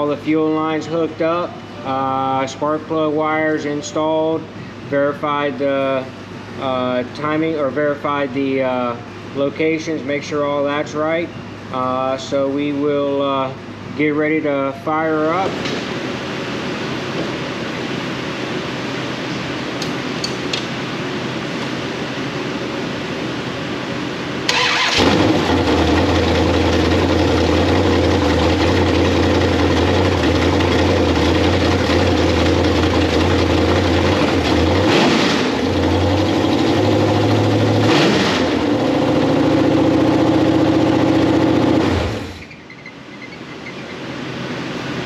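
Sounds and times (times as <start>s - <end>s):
engine starting: 24.5s - 26.1s, 42.0s - 43.8s
engine running and revving: 24.5s - 42.4s.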